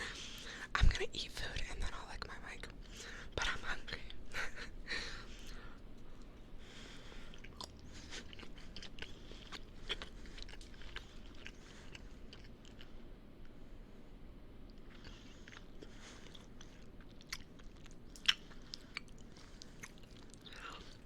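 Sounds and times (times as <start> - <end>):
person biting and chewing: 7.3 - 12.9, 14.7 - 21.0.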